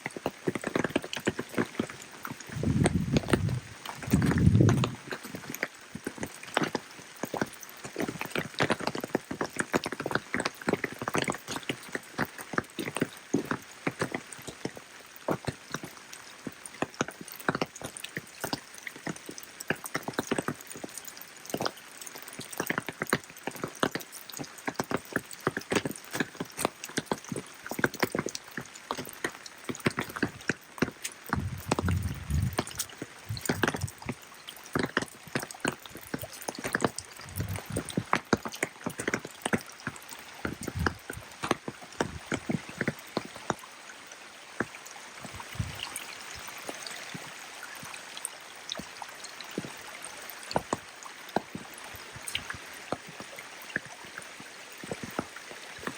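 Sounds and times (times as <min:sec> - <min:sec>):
rain drops pattering: 0:00.0 - 0:55.9
low rumble: 0:02.6 - 0:05.0, 0:31.4 - 0:34.1, 0:37.2 - 0:37.9.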